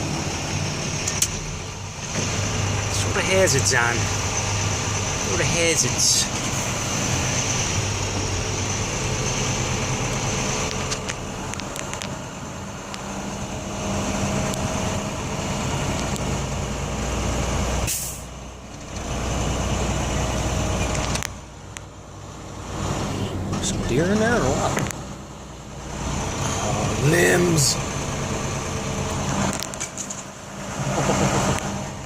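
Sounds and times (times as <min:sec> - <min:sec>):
diesel truck engine running: 0:00.0 - 0:32.0
sharp clicks: 0:10.6 - 0:12.2
short hiss: 0:17.9 - 0:18.3.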